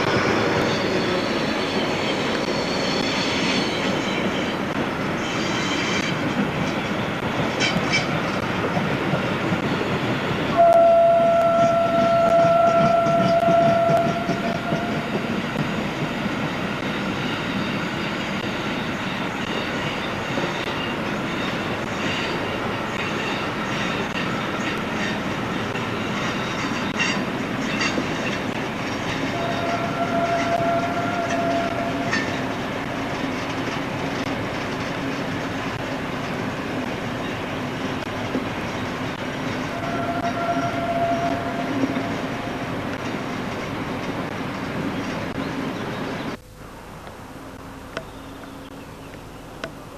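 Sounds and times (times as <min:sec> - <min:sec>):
train rumble: 0:00.0 - 0:49.9
train horn blasts: 0:10.5 - 0:15.2, 0:29.3 - 0:32.4, 0:39.7 - 0:42.5
wheels clicking on rails: 0:21.5 - 0:45.5.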